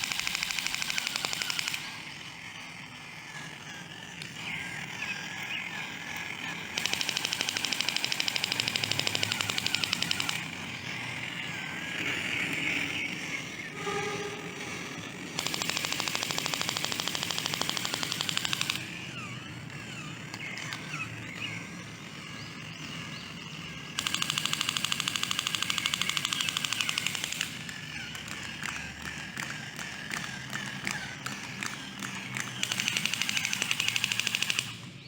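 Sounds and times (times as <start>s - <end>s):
rapid machine-gun fire: 0.0s - 2.3s, 5.8s - 12.2s, 15.4s - 19.1s, 23.9s - 27.7s, 31.2s - 34.8s
high warbling tones: 12.0s - 15.4s.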